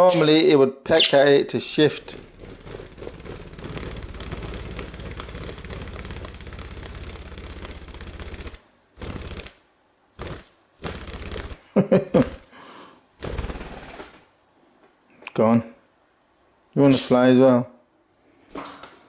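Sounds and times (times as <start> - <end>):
bird wings fluttering: 1.9 - 12.6, 13.2 - 14.3.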